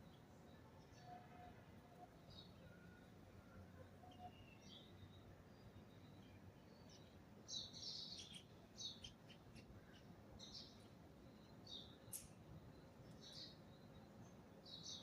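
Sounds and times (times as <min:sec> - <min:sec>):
small birds chirping: 0:04.1 - 0:15.0.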